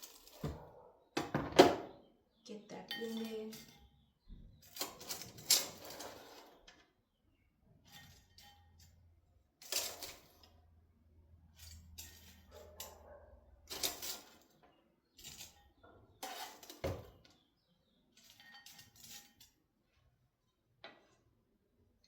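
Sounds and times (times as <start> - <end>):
utensil clattering against dish: 2.9 - 4.0.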